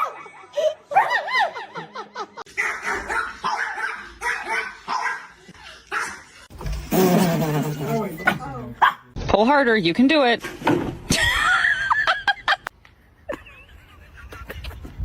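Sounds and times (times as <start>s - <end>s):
dog yelps: 0.0s - 1.4s, 2.5s - 5.3s
dogs barking: 2.5s - 6.3s, 8.8s - 9.1s.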